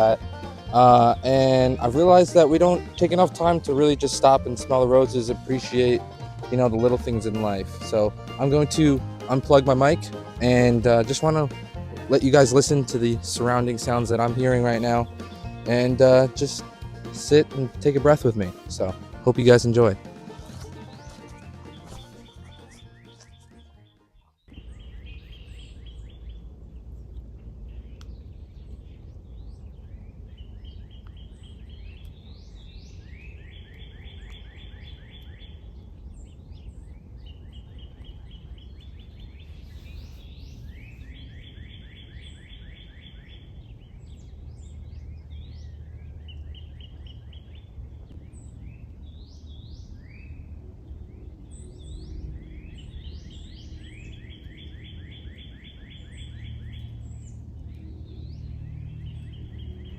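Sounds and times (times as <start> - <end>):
songbird trill: 0.0 - 59.9
low background rumble: 24.6 - 33.1
high whistled bird calls: 51.1 - 59.9.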